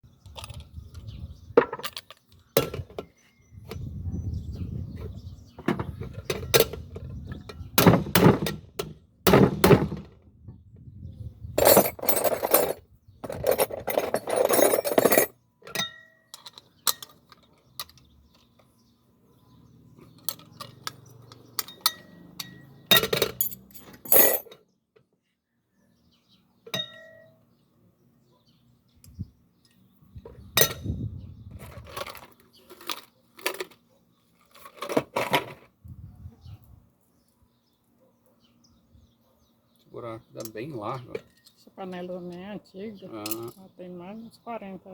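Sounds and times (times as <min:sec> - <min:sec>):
pressure cooker metal clinks and knocks: 0:15.7 - 0:17.2, 0:26.7 - 0:27.3.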